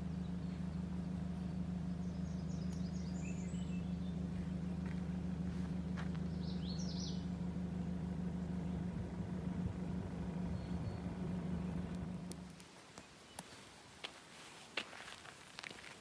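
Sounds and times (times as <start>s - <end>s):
steady low hum: 0.0s - 12.6s
small birds chirping: 0.0s - 14.0s.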